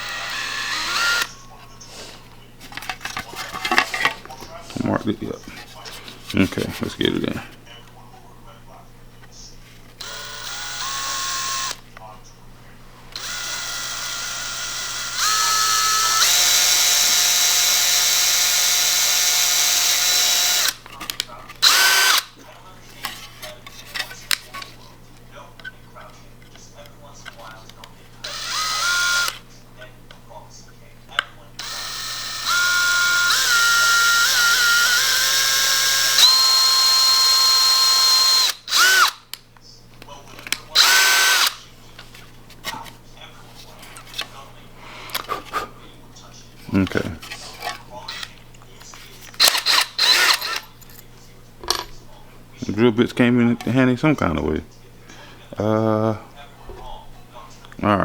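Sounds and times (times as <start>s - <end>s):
electric drill motor whine: 0.0s - 1.4s, 10.0s - 11.8s, 13.1s - 20.8s, 21.6s - 22.3s, 28.2s - 29.5s, 31.6s - 39.3s, 40.7s - 41.6s, 48.1s - 48.4s, 49.3s - 50.7s.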